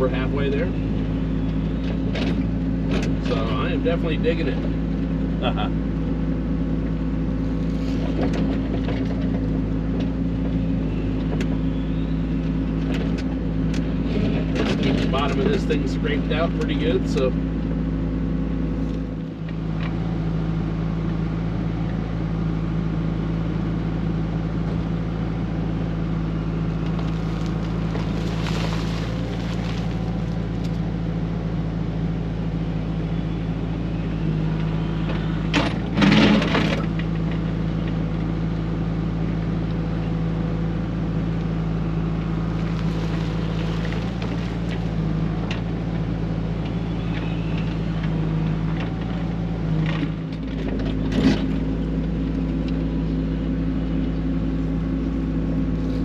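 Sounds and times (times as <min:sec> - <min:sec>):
excavator diesel engine running: 0:00.0 - 0:56.0
excavator bucket scraping: 0:26.9 - 0:30.6, 0:35.6 - 0:37.0, 0:42.6 - 0:45.1.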